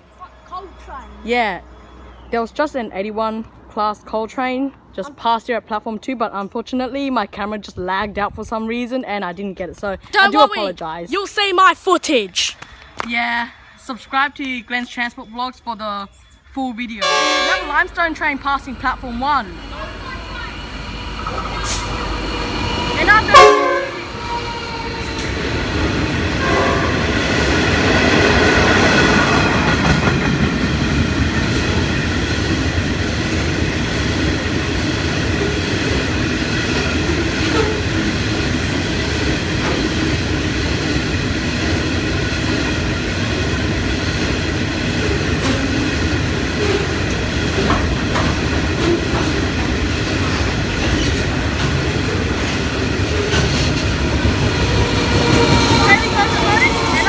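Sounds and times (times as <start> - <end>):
freight train rumble: 12.8 - 57.0
wheels clattering over rail joints: 27.1 - 57.0.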